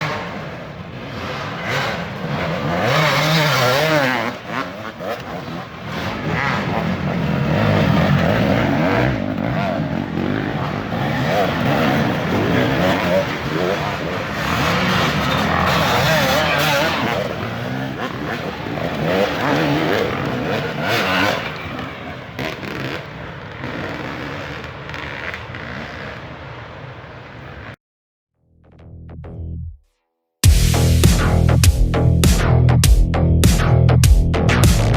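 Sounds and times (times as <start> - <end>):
dirt bike engine revving: 0.0 - 27.8.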